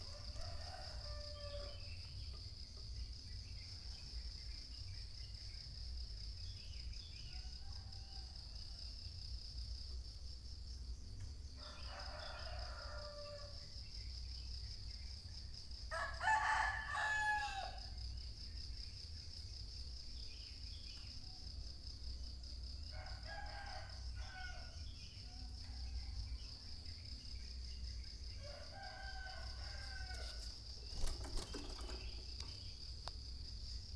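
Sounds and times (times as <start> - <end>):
rooster crowing: 0.0 - 1.9, 11.6 - 13.6, 15.9 - 17.9, 22.9 - 24.8, 28.4 - 30.4
high-pitched insect trill: 0.0 - 33.9.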